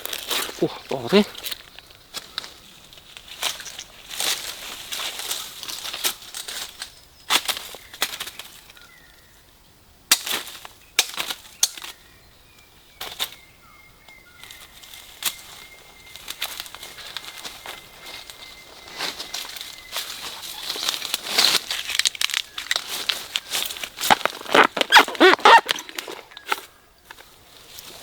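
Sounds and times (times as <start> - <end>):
dry leaves rustling: 0.0 - 8.7, 14.4 - 28.0.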